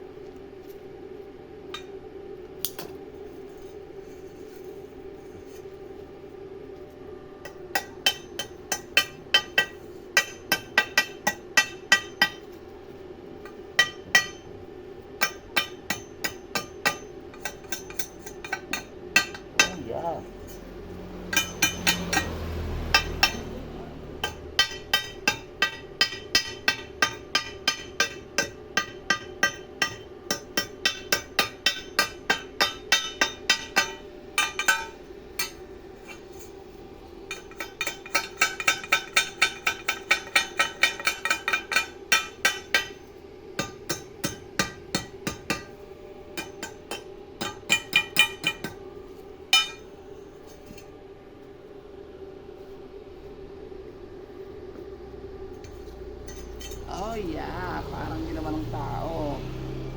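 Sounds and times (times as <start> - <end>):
steady hum: 0.0 - 59.9
hammer striking metal: 7.5 - 12.5, 13.4 - 14.5, 15.2 - 20.1, 21.3 - 23.6, 24.2 - 36.2, 37.3 - 43.0, 43.6 - 45.8, 46.4 - 48.8, 49.5 - 49.9.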